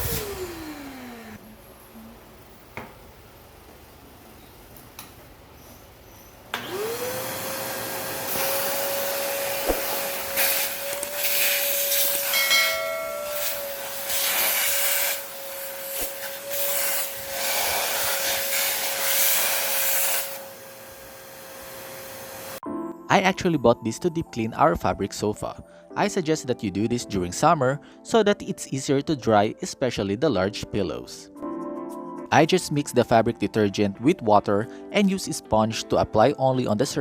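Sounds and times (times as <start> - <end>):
vacuum cleaner motor whine: 0.0 - 4.4, 6.0 - 22.6
rush of suction: 13.4 - 20.4.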